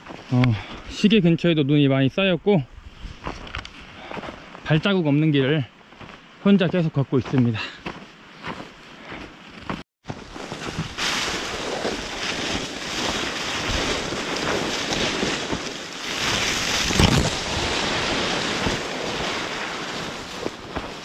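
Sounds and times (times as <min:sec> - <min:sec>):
strong wind gusts: 0:10.2 - 0:21.0
wind buffeting microphone: 0:10.4 - 0:21.0.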